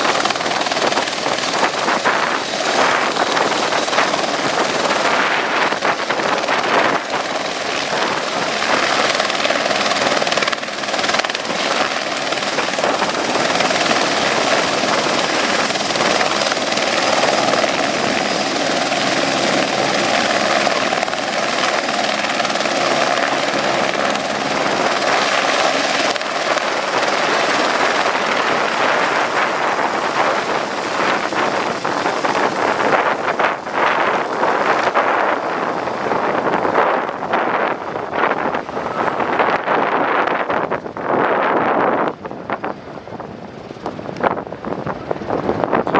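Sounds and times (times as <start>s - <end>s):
helicopter rotor and engine noise: 0.0s - 45.9s.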